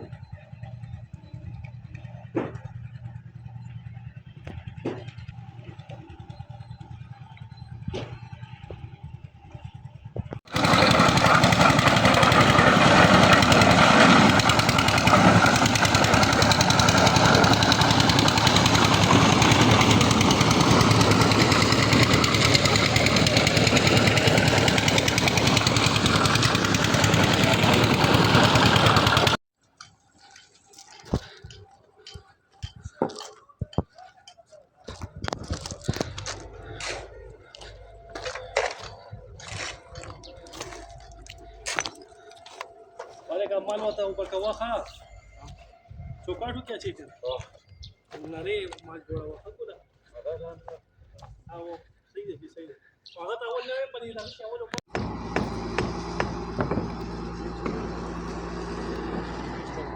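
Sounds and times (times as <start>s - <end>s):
power tool hammering rattle: 10.4s - 29.4s, 54.8s - 59.9s.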